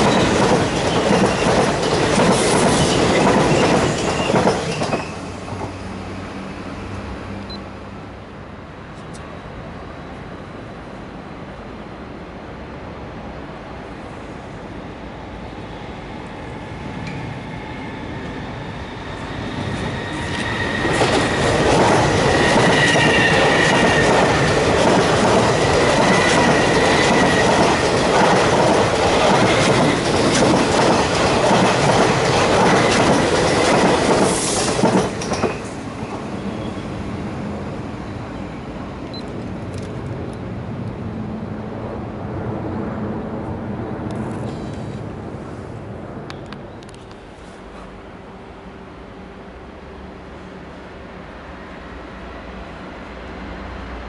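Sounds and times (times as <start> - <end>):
train rumble: 0.0 - 54.0
high wheel squeal: 17.4 - 21.6, 22.2 - 24.1.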